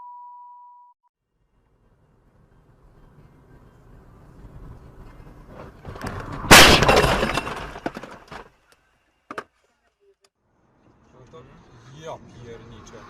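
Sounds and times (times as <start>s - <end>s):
loud vehicle collision impact: 5.6s - 8.6s
glass breaking and crackling: 6.5s - 8.4s.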